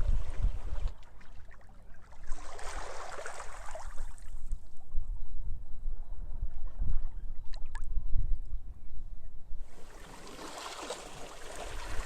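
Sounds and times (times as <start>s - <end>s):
wind buffeting microphone: 0.0s - 1.3s, 4.6s - 12.0s
wave washing up beach: 9.7s - 12.0s.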